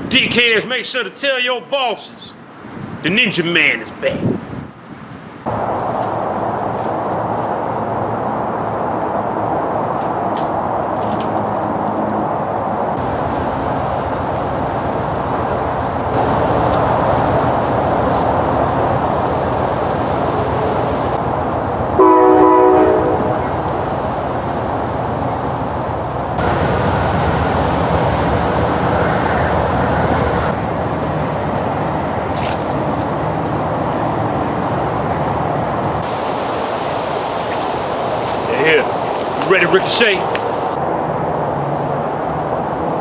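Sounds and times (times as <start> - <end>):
train rumbling past: 12.9 - 32.3, 33.2 - 43.0
train horn blast: 22.0 - 23.5.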